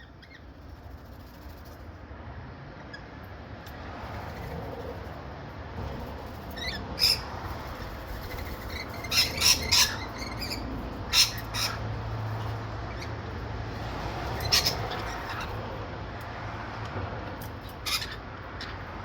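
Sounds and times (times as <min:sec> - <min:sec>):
birds squawking: 0:06.3 - 0:13.4, 0:14.2 - 0:15.6, 0:17.6 - 0:18.9.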